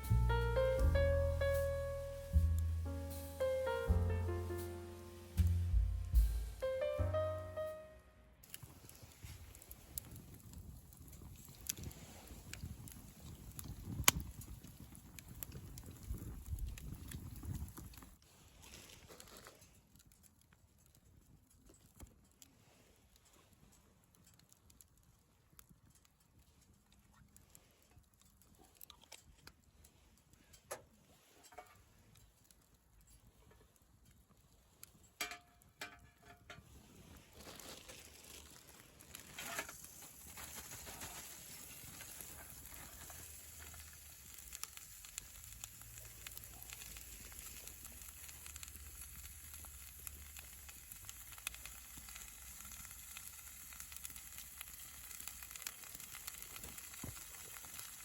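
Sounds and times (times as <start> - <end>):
food sizzling: 0.0 - 7.8, 37.4 - 58.0.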